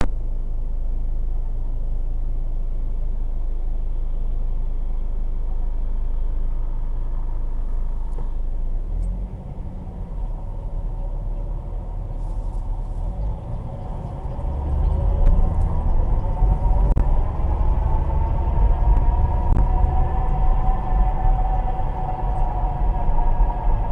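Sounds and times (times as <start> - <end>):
car engine running: 0.0 - 23.9
gearbox whine: 5.1 - 23.9.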